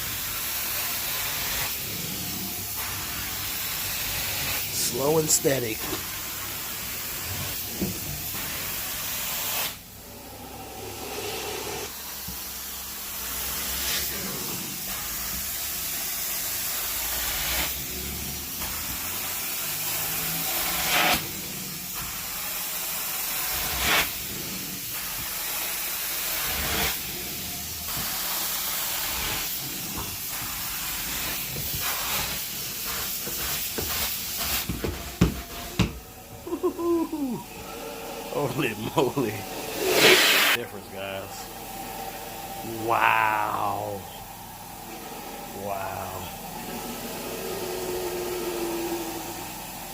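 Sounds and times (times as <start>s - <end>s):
carpet-cleaning wand hissing: 0.0s - 49.9s.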